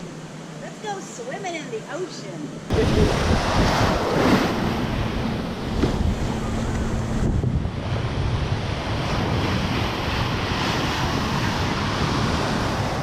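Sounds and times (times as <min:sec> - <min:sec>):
ocean surf washing: 0:00.0 - 0:13.0
wind buffeting microphone: 0:02.7 - 0:13.0.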